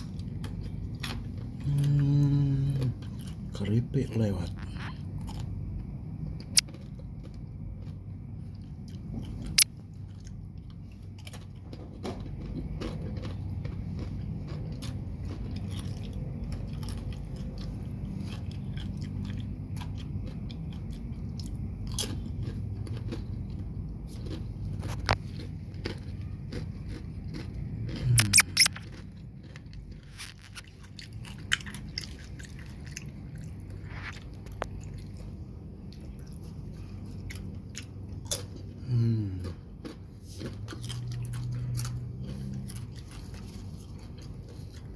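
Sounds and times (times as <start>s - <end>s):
chips crunching and chewing: 0.0s - 5.8s, 6.4s - 44.9s
steady low rumble: 0.0s - 44.9s.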